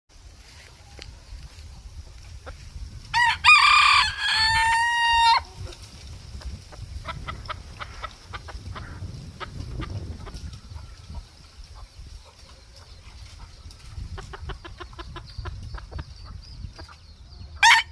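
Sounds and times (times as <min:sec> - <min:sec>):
rooster crowing: 0:03.1 - 0:05.5, 0:17.6 - 0:17.9.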